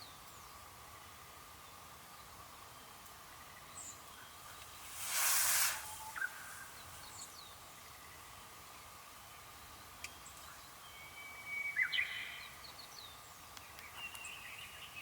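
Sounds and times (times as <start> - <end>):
faint bird chirps: 0.0 - 15.0
loud rushing hiss: 4.7 - 7.0.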